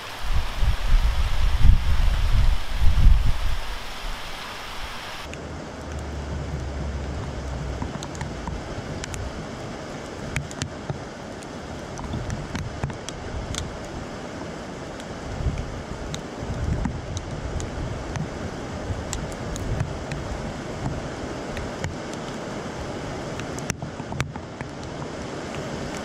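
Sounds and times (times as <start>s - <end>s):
light rain hissing: 0.0s - 26.0s
low rumble: 5.4s - 9.4s.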